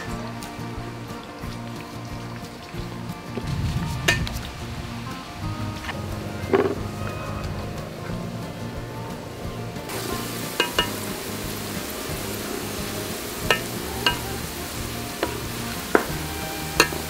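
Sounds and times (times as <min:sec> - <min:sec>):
background music: 0:00.0 - 0:17.0
garlic sizzling in hot oil: 0:09.8 - 0:17.0
metal spatula clinking on wok: 0:10.5 - 0:11.0.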